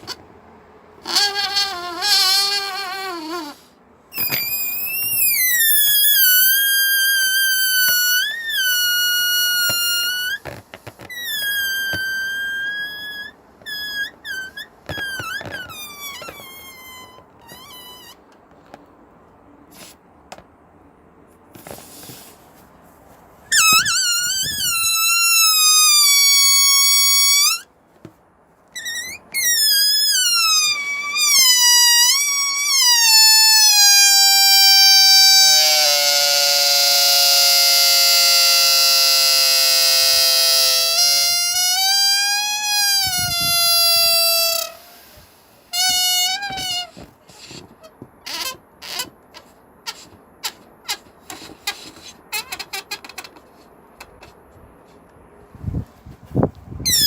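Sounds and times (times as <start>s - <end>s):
balloon squealing as air escapes: 1.0s - 18.3s, 19.7s - 20.0s, 23.5s - 27.7s, 28.7s - 54.4s, 56.8s - 57.0s
short balloon chirps: 1.1s - 18.2s, 23.5s - 27.6s, 28.8s - 47.7s.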